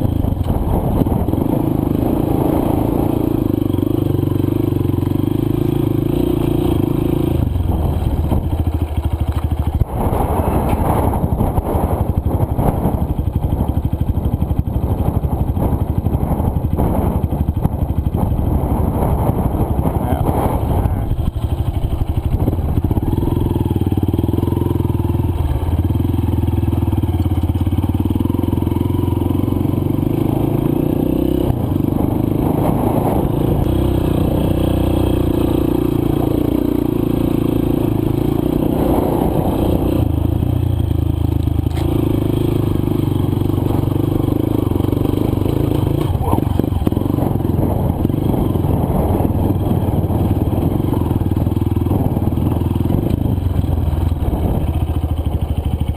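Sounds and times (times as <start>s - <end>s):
dirt bike engine revving: 18.2s - 24.9s, 28.0s - 40.6s, 41.6s - 53.2s.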